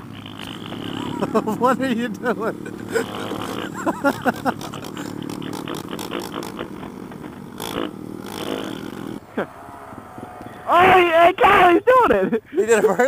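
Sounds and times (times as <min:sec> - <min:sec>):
motorcycle engine running: 0:00.0 - 0:11.0
rumbling and clicking on microphone: 0:03.4 - 0:09.1.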